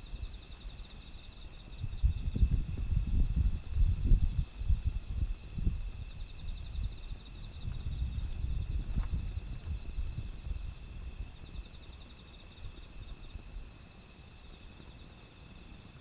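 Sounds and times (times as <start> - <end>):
insects chirping: 0.0 - 16.0
gusty wind buffeting microphone: 1.1 - 11.8.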